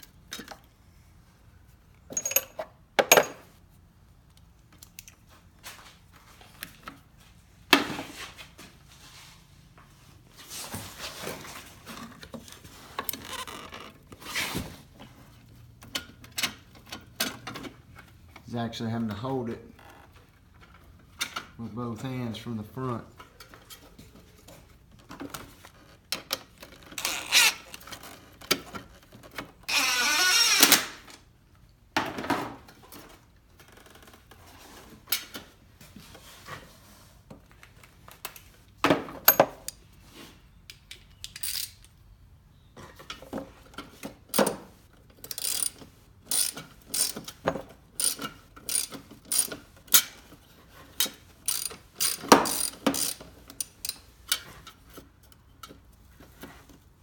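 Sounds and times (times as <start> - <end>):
metal tools clinking: 2.1 - 3.5
ratchet wrench clicking: 41.2 - 41.9, 45.2 - 47.4, 48.0 - 50.0, 51.0 - 54.0.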